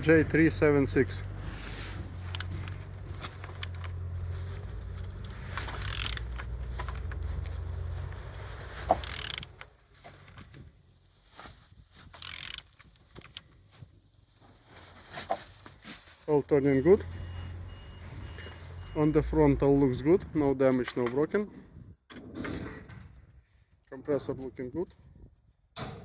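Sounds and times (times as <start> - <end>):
engine turned over clicking: 0.0 - 10.7.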